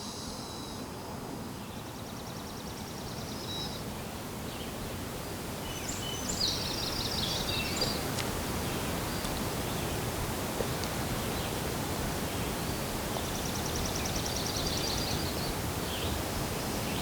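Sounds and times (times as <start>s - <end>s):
songbirds singing: 5.6s - 10.0s.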